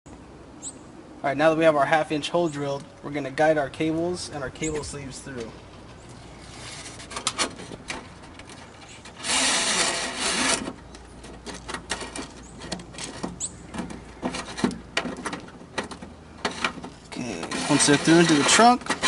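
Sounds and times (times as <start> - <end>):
cables scraping against metal edge: 3.7 - 19.0
loud rasping scrape: 6.4 - 7.7, 8.8 - 15.2, 16.4 - 19.0.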